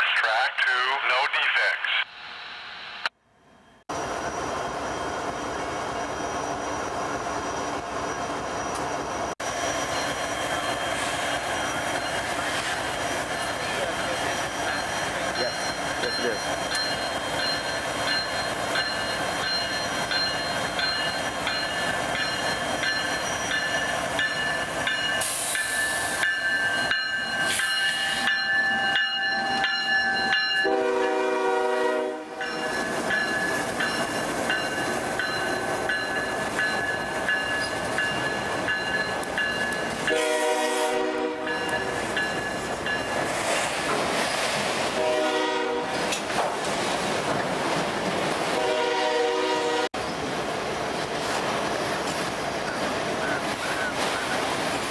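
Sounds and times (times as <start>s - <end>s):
freight train rumbling past: 3.9s - 54.9s
train air horn blasts: 30.6s - 32.4s, 40.1s - 41.5s, 45.0s - 46.0s, 48.6s - 50.0s.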